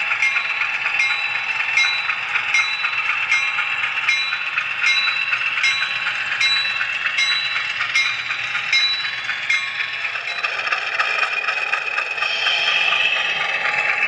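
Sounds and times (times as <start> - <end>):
model train wheels whining: 0.0 - 14.0
sharp track clicks: 0.0 - 14.0.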